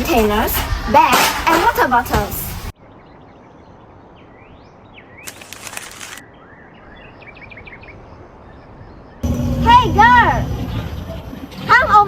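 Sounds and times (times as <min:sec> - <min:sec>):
small birds chirping: 0:02.7 - 0:09.3.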